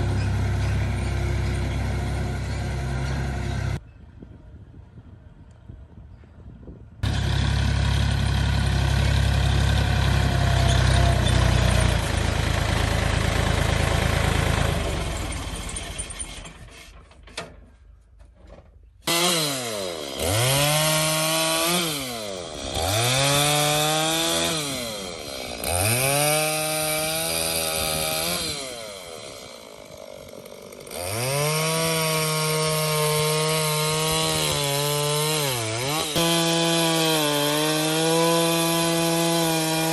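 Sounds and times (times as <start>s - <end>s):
chainsaw cutting logs: 0.0s - 3.8s, 7.0s - 17.0s, 19.0s - 39.9s.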